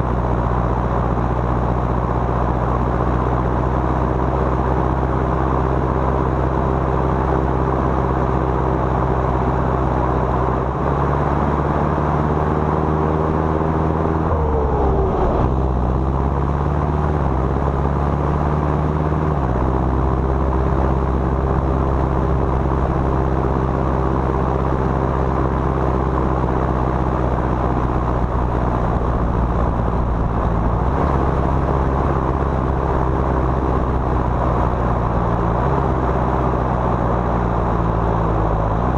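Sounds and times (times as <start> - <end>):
tractor diesel engine running: 19.3 - 38.9.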